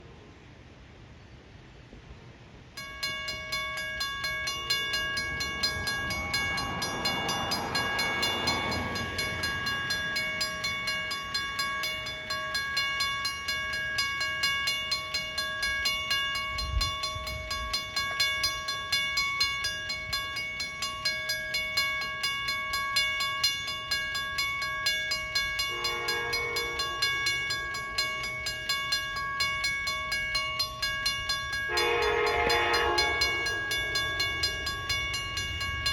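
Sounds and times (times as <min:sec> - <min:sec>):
railroad crossing bell ringing: 0:02.5 - 0:35.9
train horn: 0:25.6 - 0:27.7, 0:31.7 - 0:34.4.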